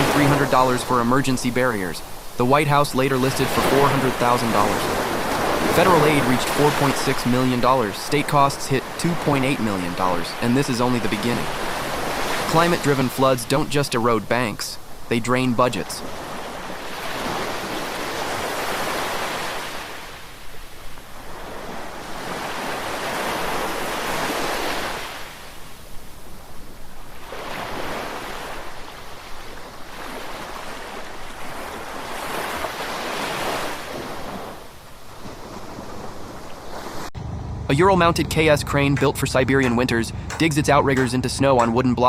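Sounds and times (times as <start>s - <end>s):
river water roaring: 0.0s - 13.8s, 36.7s - 42.0s.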